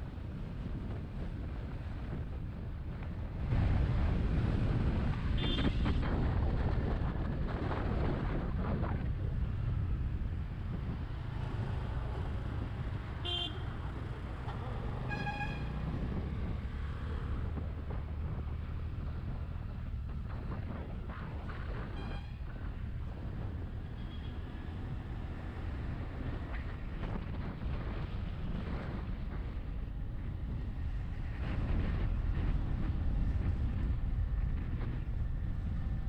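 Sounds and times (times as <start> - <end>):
road traffic rumble: 0.0 - 36.0
vehicle horns tooting: 13.2 - 13.7, 15.0 - 15.8.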